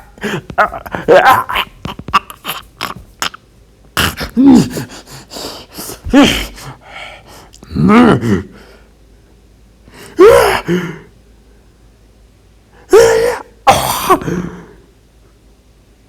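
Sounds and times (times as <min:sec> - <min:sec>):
breathy sounds: 0:00.0 - 0:03.4, 0:04.0 - 0:08.9
man grunting and crying out: 0:00.0 - 0:03.4, 0:04.0 - 0:05.1, 0:05.8 - 0:06.8, 0:07.6 - 0:08.6, 0:10.1 - 0:11.0, 0:12.9 - 0:14.7.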